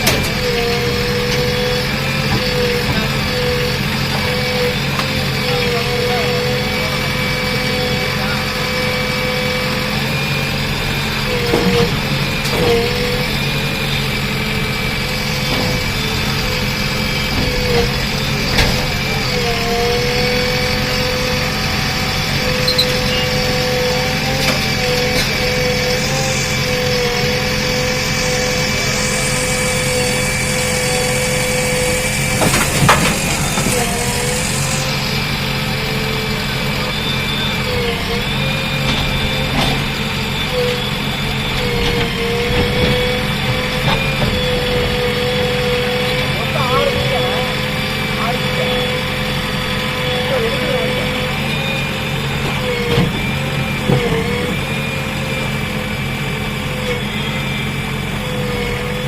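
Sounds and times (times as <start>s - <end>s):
diesel engine running: 0.0s - 59.0s
steady high whine: 0.0s - 59.0s
hiss: 12.1s - 37.8s.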